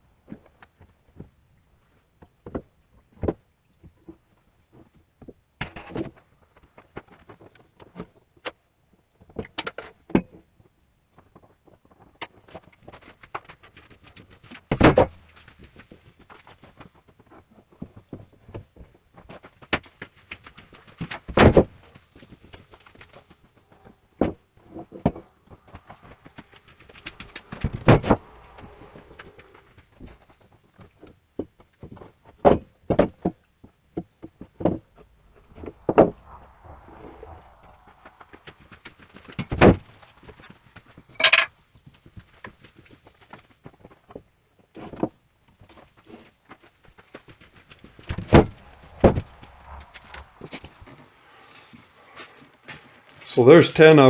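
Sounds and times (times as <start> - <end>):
loud thumps of beams: 48.1 - 50.8.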